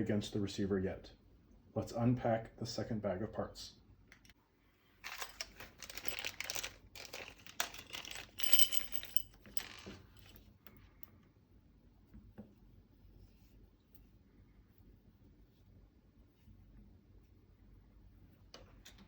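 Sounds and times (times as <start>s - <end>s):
plastic bag crinkling: 5.0s - 10.3s
metal parts clinking: 5.0s - 10.4s.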